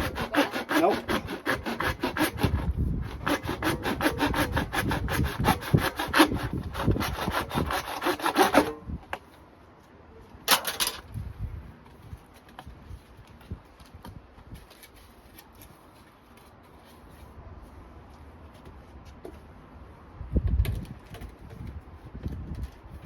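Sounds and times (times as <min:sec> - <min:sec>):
hand saw cutting: 0:00.0 - 0:08.8.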